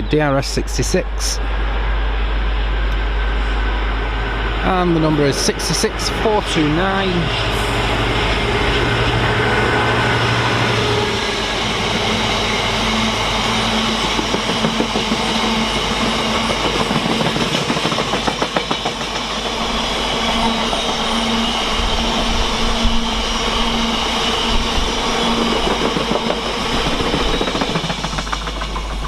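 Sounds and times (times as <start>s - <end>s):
freight train passing: 0.0s - 29.0s
wheels clacking over rail joints: 13.4s - 19.6s, 25.3s - 29.0s.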